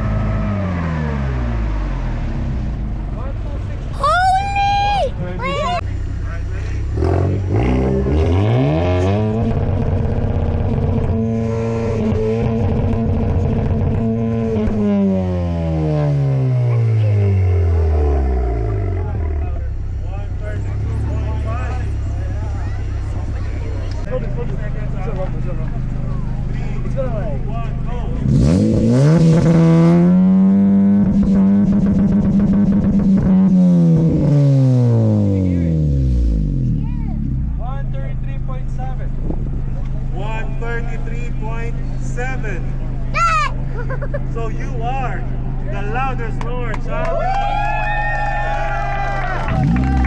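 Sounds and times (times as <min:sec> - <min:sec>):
car engine revving hard: 0:06.8 - 0:19.4, 0:28.1 - 0:37.6, 0:49.3 - 0:50.0.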